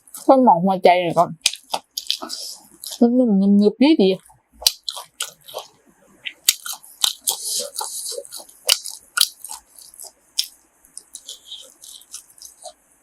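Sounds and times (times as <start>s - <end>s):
close-up chewing: 1.4s - 3.0s, 4.2s - 12.8s.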